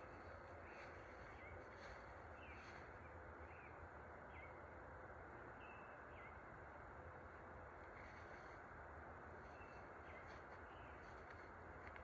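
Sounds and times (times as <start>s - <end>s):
small birds chirping: 0.0s - 4.6s, 9.4s - 11.5s.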